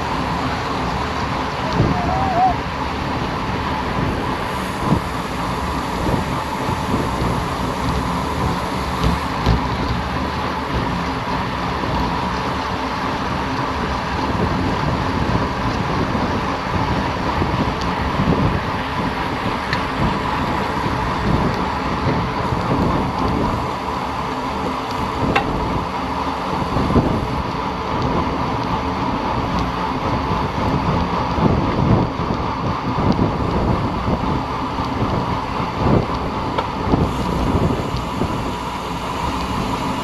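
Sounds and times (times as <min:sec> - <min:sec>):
wind rush: 0:00.0 - 0:12.0, 0:14.1 - 0:40.0
bicycle road noise: 0:00.0 - 0:40.0.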